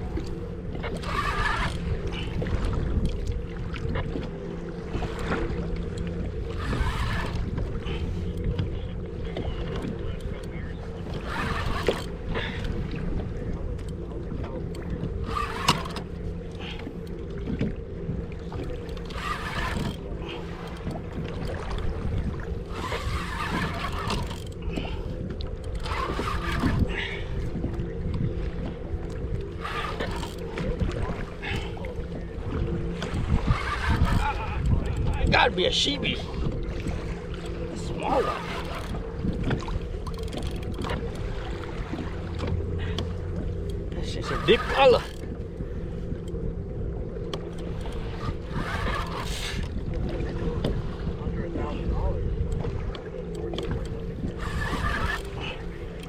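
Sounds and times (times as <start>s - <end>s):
low rumble of wind and sea: 0.0s - 56.0s
steady low hum: 0.0s - 56.0s
water splashing against kayak hull: 0.0s - 56.0s
scattered clicks: 33.0s - 35.7s, 52.4s - 56.0s.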